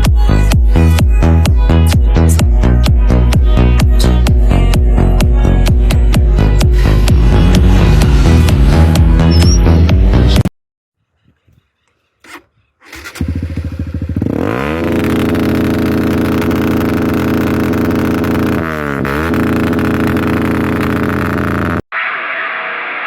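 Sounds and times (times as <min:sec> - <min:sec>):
motorcycle engine revving: 0:03.8 - 0:10.4, 0:11.1 - 0:21.8.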